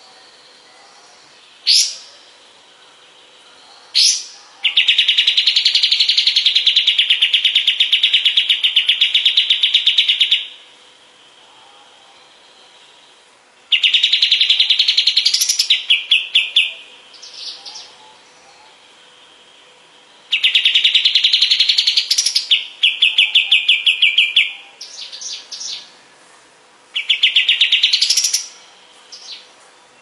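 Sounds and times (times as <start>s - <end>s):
bird singing rattling trill: 0.0s - 10.6s, 12.2s - 26.0s, 26.9s - 30.0s.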